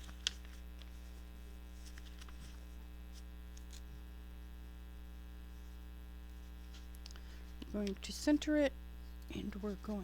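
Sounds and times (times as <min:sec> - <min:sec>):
paper rustling: 0:00.0 - 0:03.8
electrical mains hum: 0:00.0 - 0:10.0.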